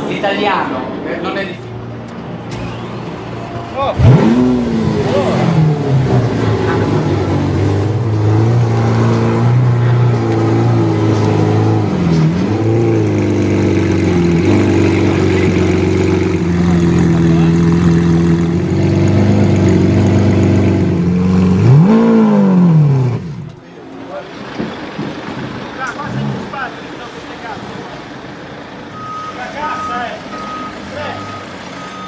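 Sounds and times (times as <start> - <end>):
car engine idling: 2.5 - 31.3.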